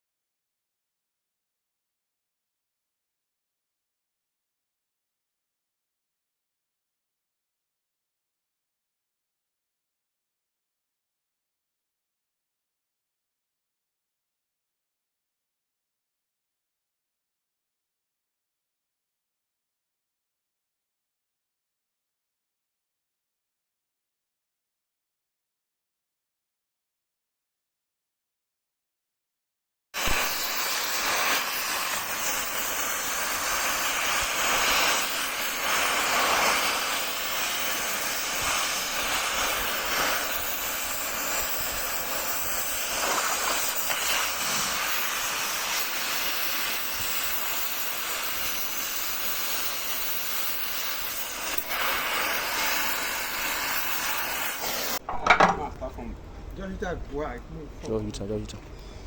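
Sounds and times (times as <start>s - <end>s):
steady hiss: 30.0s - 58.6s.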